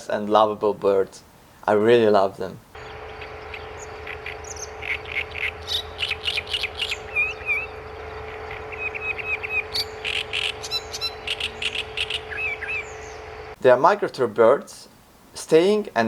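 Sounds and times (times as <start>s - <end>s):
steady low hum: 2.6s - 13.6s
warbler singing harsh chattering notes: 2.8s - 13.6s.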